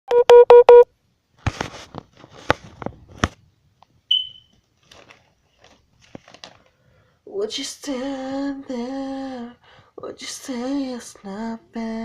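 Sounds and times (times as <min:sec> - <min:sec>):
loud electronic beeps: 0:04.1 - 0:04.5
short high-pitched ping: 0:04.1 - 0:04.5.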